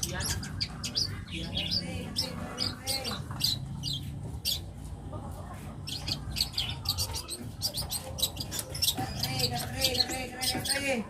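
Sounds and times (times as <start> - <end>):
bird singing rapid high notes: 0.0 - 4.8, 5.8 - 11.0.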